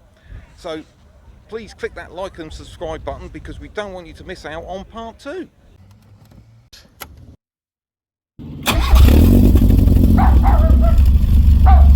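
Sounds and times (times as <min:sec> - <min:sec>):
loud engine running: 0:08.4 - 0:11.9
short yelping calls: 0:10.2 - 0:11.0.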